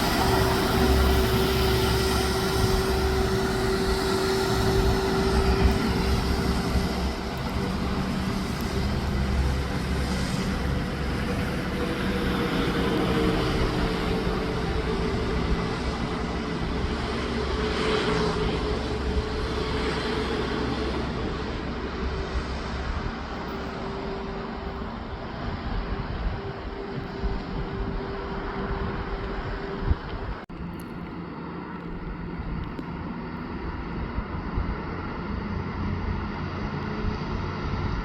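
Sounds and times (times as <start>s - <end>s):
road and tyre noise: 0.0s - 38.0s
truck engine drone: 0.0s - 38.0s.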